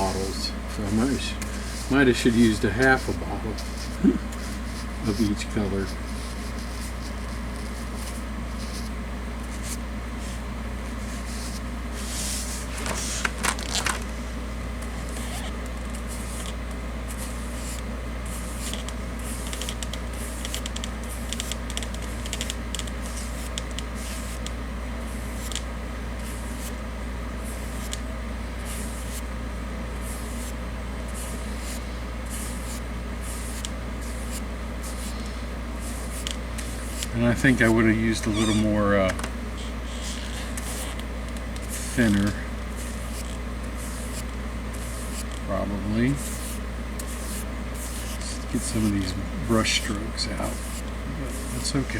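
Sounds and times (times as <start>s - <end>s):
paintbrush strokes: 0.8s - 8.9s, 17.1s - 20.6s, 21.2s - 24.4s, 27.4s - 28.0s, 28.6s - 29.2s, 30.0s - 38.8s, 40.6s - 41.0s, 41.6s - 51.9s.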